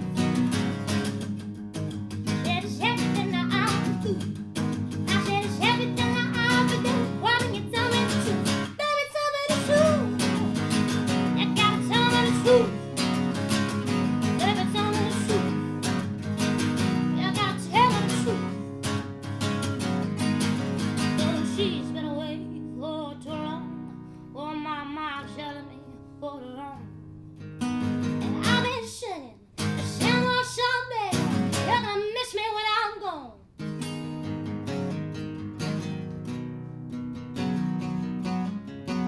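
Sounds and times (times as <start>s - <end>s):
strummed acoustic guitar: 0.0s - 32.8s, 33.5s - 39.0s
person singing wordless melody: 2.4s - 4.3s, 5.0s - 13.2s, 14.2s - 15.9s, 17.0s - 18.7s, 21.0s - 26.8s, 28.2s - 29.3s, 29.9s - 33.3s.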